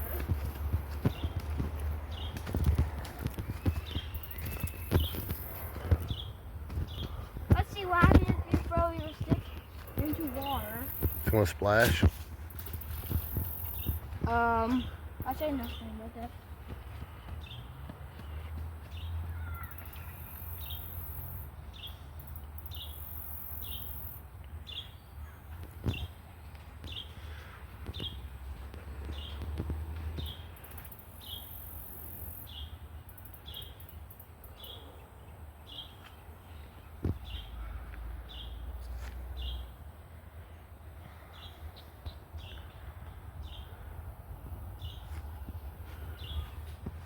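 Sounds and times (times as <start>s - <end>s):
bird chirping: 0.0s - 11.4s
low wind rumble: 0.0s - 19.7s.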